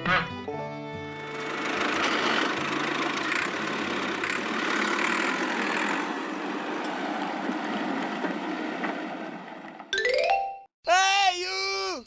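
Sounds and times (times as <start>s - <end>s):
small electric motor running: 1.2s - 6.2s.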